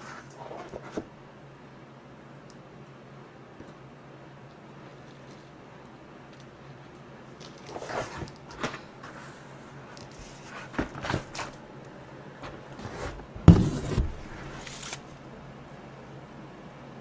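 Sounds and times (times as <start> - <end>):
gift box rustling and knocking: 12.9 - 14.4.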